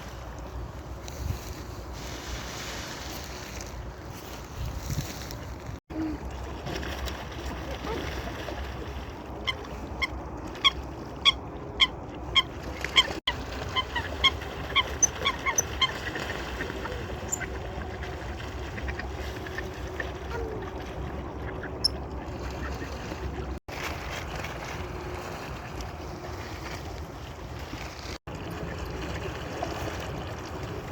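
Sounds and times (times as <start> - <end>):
waterfowl honking calls: 9.4 - 18.0.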